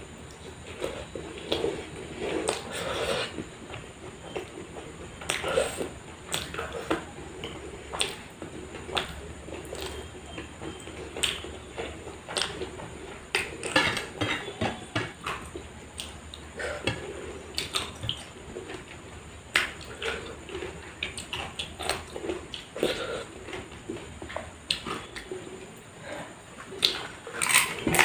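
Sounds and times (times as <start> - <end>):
person chewing: 0.3 - 3.5, 15.2 - 18.9, 19.5 - 25.4, 26.6 - 28.0
utensils clinking against dishes: 13.6 - 15.2.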